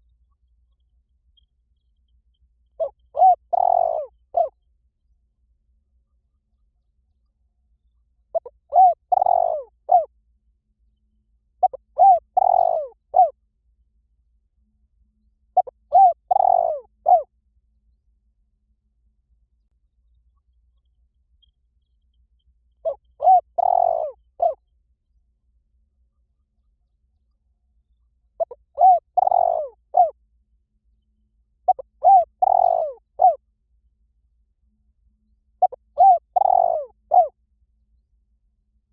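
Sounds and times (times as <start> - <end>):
dove cooing: 2.8 - 4.6, 8.3 - 10.1, 11.6 - 13.4, 15.6 - 17.3, 22.8 - 24.6, 28.4 - 30.2, 31.7 - 33.4, 35.6 - 37.4.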